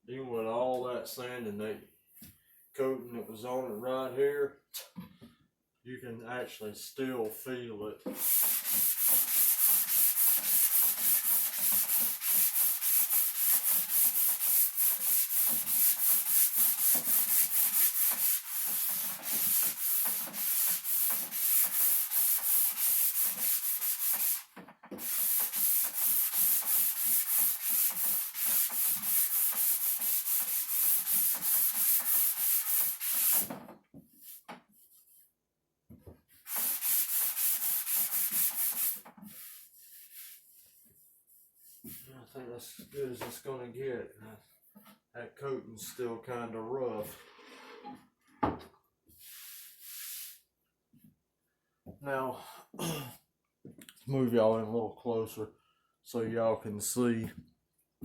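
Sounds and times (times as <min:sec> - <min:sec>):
sandpaper rubbing on wood: 0:08.1 - 0:33.6, 0:36.4 - 0:42.0, 0:49.2 - 0:50.4.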